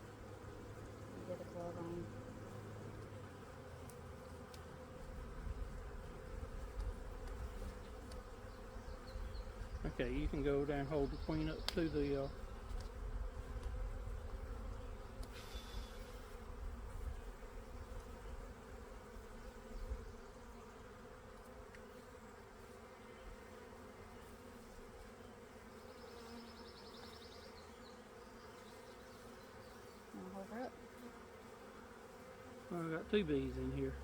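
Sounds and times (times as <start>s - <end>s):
honey bees buzzing: 0.0s - 34.0s.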